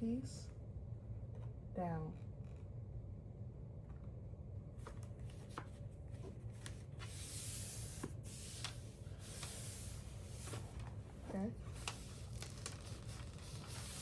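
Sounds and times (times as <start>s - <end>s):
faint low hum: 0.0s - 14.0s
plastic sheet sliding hiss: 7.1s - 10.8s
plastic sheet rubbing and rustling: 7.4s - 14.0s.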